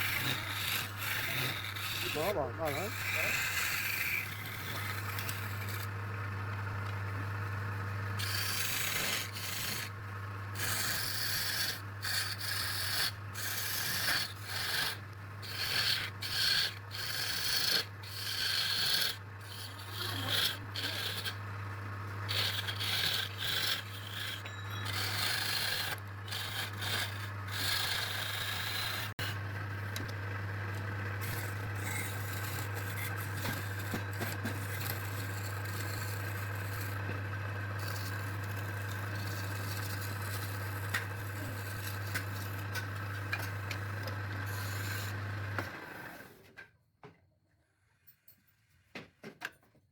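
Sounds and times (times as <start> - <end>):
sanding strokes on wood: 0.0 - 3.6, 10.6 - 21.4.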